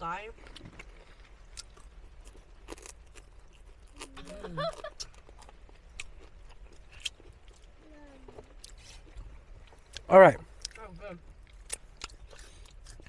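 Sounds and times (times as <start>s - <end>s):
crunching and chewing food: 0.1s - 13.0s.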